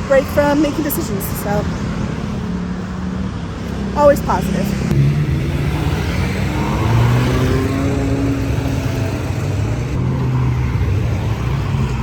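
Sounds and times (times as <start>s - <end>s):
sports cars accelerating past: 3.7s - 12.0s.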